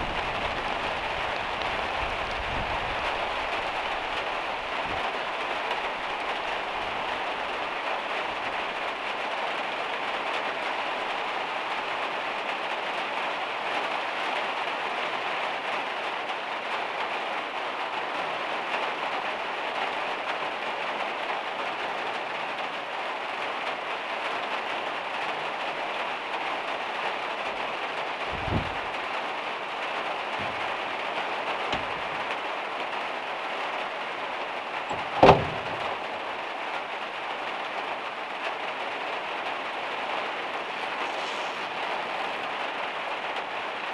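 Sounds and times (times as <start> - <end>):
heavy rain on a metal roof: 0.0 - 43.9
low thumps: 28.3 - 29.0, 30.4 - 32.3, 34.9 - 36.3.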